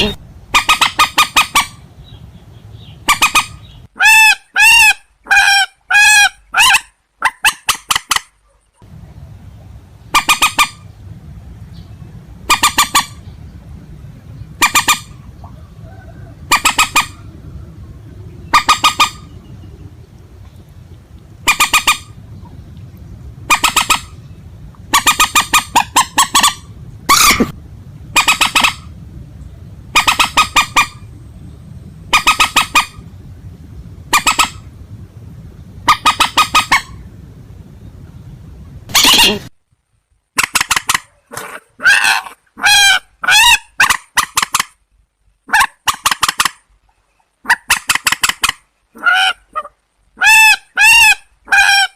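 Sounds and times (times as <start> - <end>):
steady low hum: 0.0 - 4.0, 8.4 - 40.4
rail bird honking calls: 0.0 - 8.3, 10.0 - 11.0, 12.4 - 13.3, 14.5 - 20.1, 21.4 - 22.6, 23.4 - 29.0, 29.8 - 31.4, 32.1 - 33.2, 34.0 - 34.8, 35.8 - 37.1, 41.8 - 44.8, 47.4 - 51.9.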